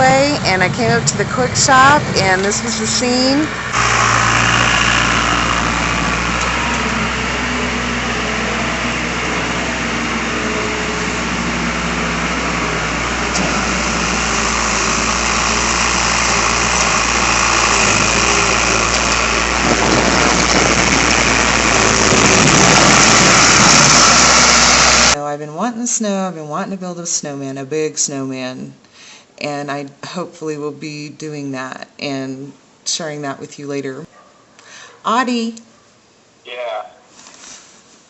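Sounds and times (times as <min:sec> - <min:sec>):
vehicle engine idling: 0:00.0 - 0:25.2.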